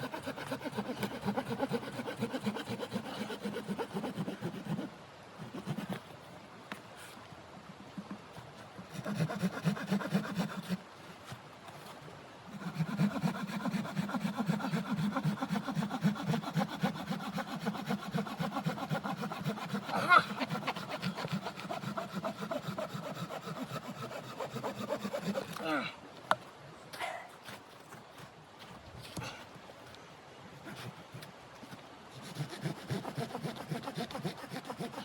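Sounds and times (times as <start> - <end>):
hand saw cutting wood: 0.0 - 6.0, 8.9 - 10.8, 12.5 - 25.9, 30.6 - 31.3, 32.1 - 35.0.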